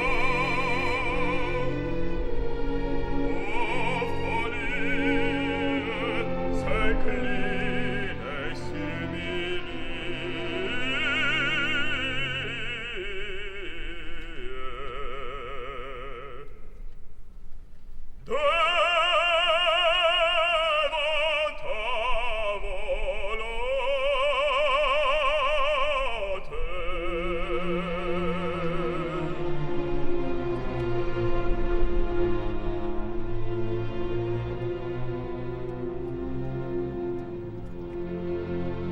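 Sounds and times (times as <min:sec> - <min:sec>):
orchestral accompaniment: 0:00.0 - 0:14.8, 0:18.2 - 0:38.9
operatic singer with vibrato: 0:00.0 - 0:17.2, 0:18.2 - 0:37.6.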